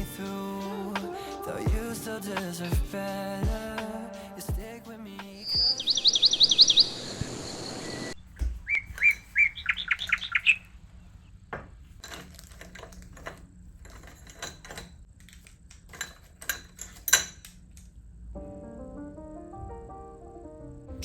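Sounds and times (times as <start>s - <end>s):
small bird chirping and trilling: 5.4s - 7.8s, 8.7s - 10.6s.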